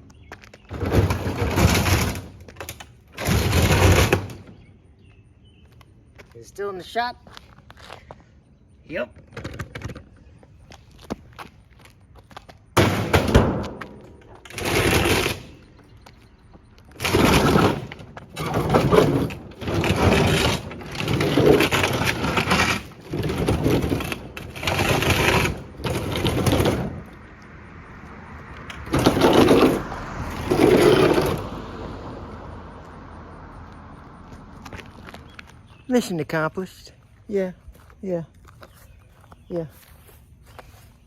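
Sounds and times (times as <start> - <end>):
refrigerator being smashed: 12.8 - 14.0.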